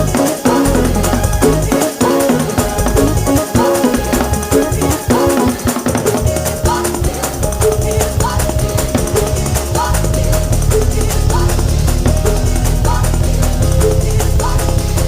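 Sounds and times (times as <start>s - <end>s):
church band music: 0.0s - 15.0s
drums beating: 0.0s - 15.0s
heavy bass: 0.0s - 15.0s.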